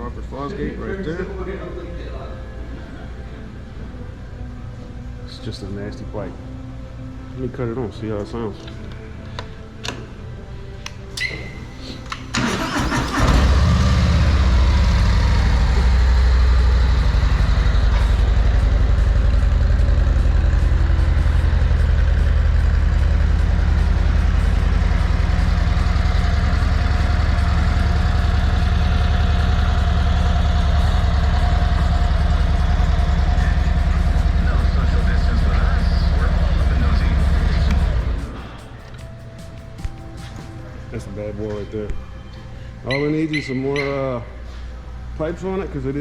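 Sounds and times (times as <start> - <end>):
motorcycle starter cranking: 11.2 - 18.6, 25.3 - 38.2
motorcycle engine idling: 12.4 - 38.5.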